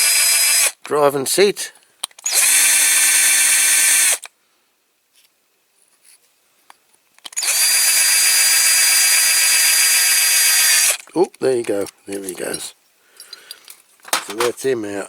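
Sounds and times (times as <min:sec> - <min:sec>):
small power drill drilling: 0:00.0 - 0:00.8, 0:02.2 - 0:04.3, 0:07.4 - 0:11.0.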